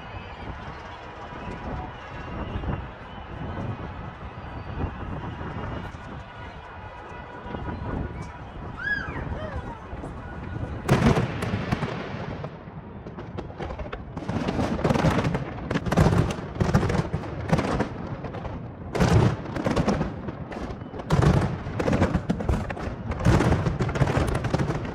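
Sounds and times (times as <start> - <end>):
firework booms: 10.4 - 24.9
firework crackling: 10.4 - 24.9.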